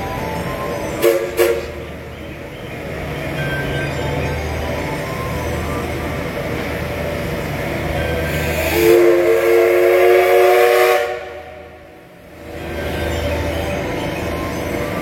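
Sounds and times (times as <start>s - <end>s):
train rumbling: 0.0s - 15.0s
train horn blast: 1.0s - 1.9s, 8.3s - 11.8s.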